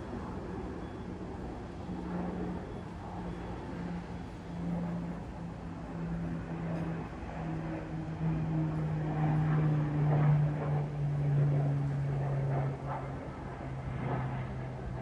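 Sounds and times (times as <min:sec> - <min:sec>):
turboprop plane flying past: 0:00.0 - 0:15.0.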